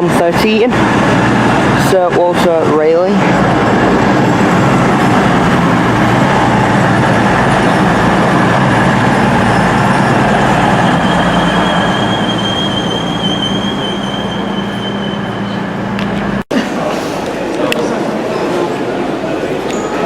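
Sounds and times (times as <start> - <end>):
train rumble and engine hum: 0.0 - 20.0
high squeal of train wheels: 8.6 - 15.8.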